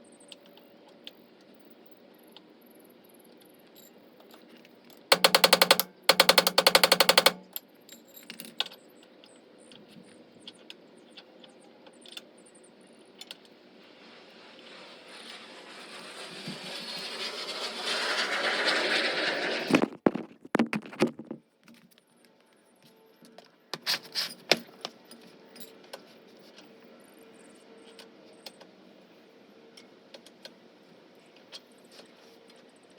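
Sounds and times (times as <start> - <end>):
air impact wrench hammering: 5.1 - 7.6.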